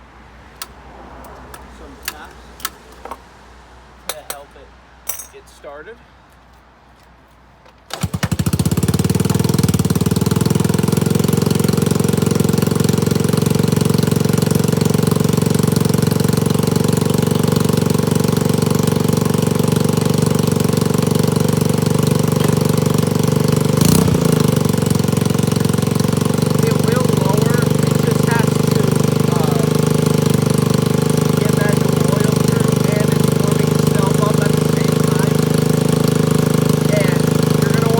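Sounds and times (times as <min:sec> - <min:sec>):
scooter engine starting and idling: 0:07.7 - 0:37.9.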